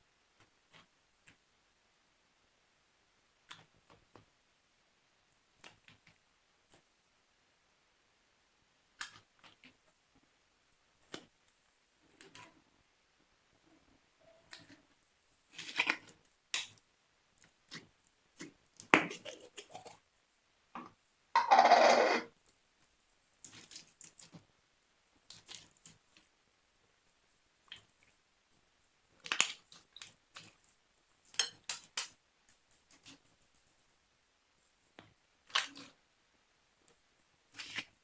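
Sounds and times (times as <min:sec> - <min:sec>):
slime squelch: 0:14.2 - 0:20.1, 0:22.4 - 0:24.5, 0:25.2 - 0:33.6, 0:34.6 - 0:36.0, 0:36.8 - 0:38.0.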